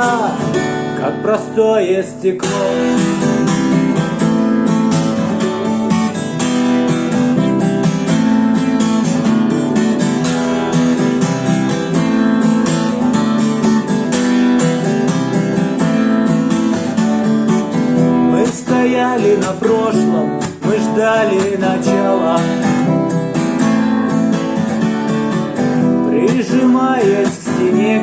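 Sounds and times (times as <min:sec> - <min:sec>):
instrumental rock ballad: 0:00.0 - 0:28.0
strummed acoustic guitar: 0:00.0 - 0:28.0.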